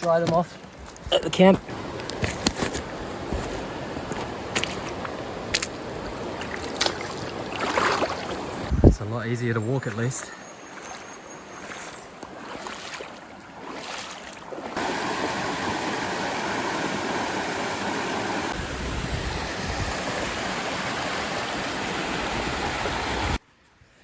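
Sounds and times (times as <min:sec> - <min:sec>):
wading steps splashing: 0:00.0 - 0:08.7, 0:09.4 - 0:17.8
fast-flowing stream rushing: 0:01.6 - 0:08.7, 0:11.6 - 0:23.4
wind rumbling on microphone: 0:08.0 - 0:09.2, 0:18.5 - 0:20.6.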